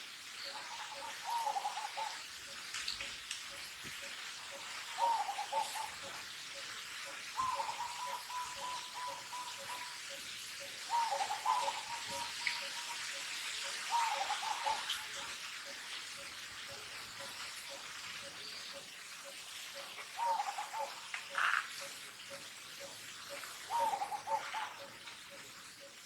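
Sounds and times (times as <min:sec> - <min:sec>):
faint regular ticking: 0:02.2 - 0:05.0, 0:11.9 - 0:26.0
baby monkey coo calls: 0:10.8 - 0:13.2.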